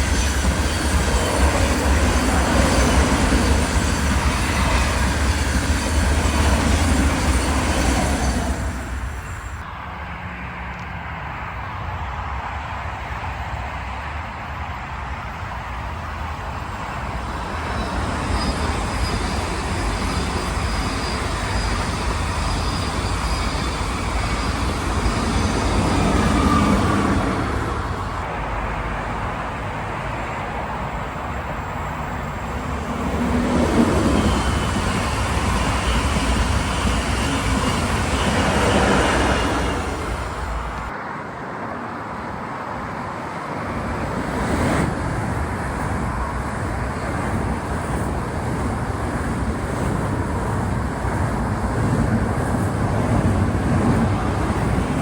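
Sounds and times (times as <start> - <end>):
wheel-on-rail running noise: 31.8 - 41.0, 43.8 - 55.0.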